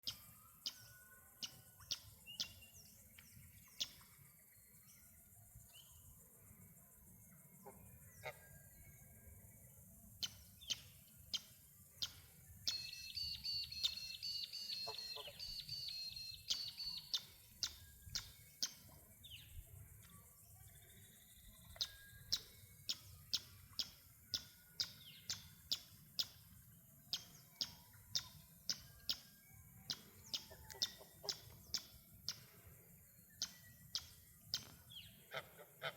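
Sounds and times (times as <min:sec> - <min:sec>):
high repeated birdsong notes: 0:12.0 - 0:18.9.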